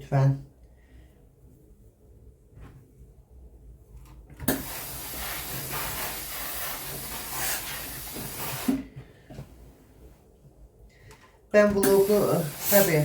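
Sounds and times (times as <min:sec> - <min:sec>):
steady hiss: 0:11.8 - 0:13.0.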